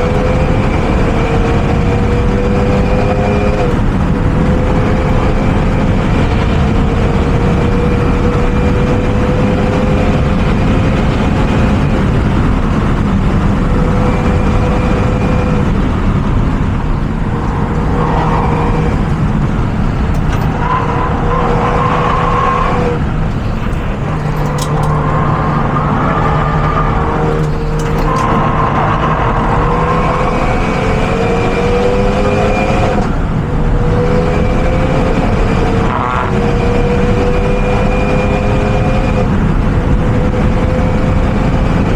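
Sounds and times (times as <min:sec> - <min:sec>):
car engine running hard: 0:00.0 - 0:41.9
rush of noise: 0:00.1 - 0:41.2.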